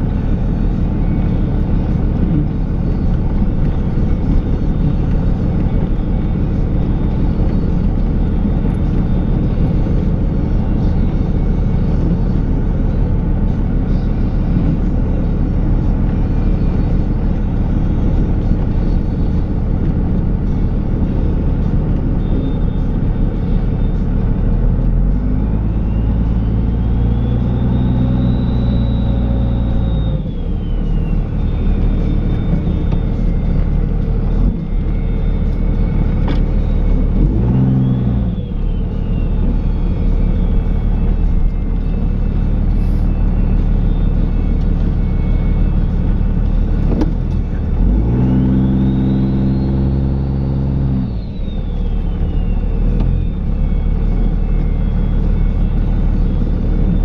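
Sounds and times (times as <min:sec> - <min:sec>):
diesel engine running: 0:00.0 - 0:57.0
rising and falling whine: 0:00.0 - 0:57.0.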